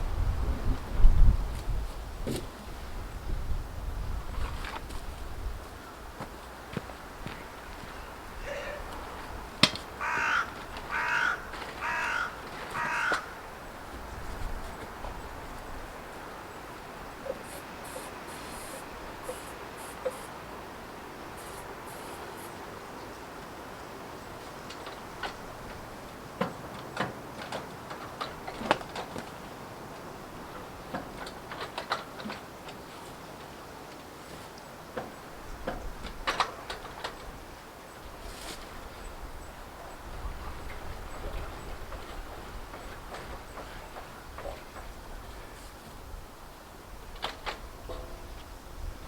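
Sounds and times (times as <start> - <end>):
crow cawing: 8.4 - 9.0, 10.0 - 13.5.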